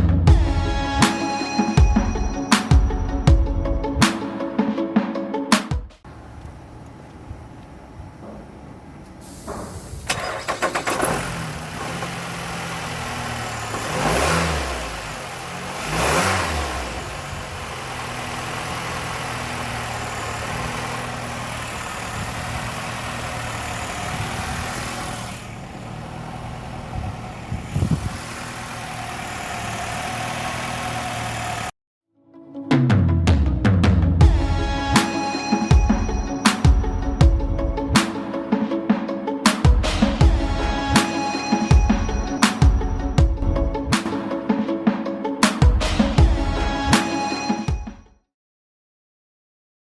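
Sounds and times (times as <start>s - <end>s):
car engine revving: 6.1s - 31.7s
car engine starting and idling: 6.1s - 31.8s.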